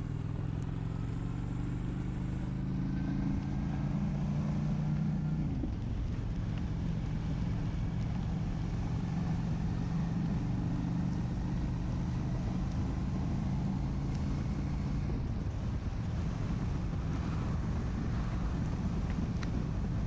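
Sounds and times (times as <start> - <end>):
motorcycle engine running: 0.0 - 2.7
wind and road noise: 0.0 - 20.0.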